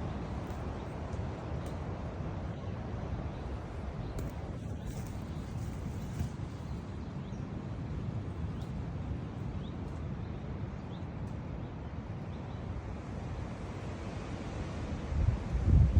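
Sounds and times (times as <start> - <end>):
wind buffeting microphone: 15.0 - 15.9.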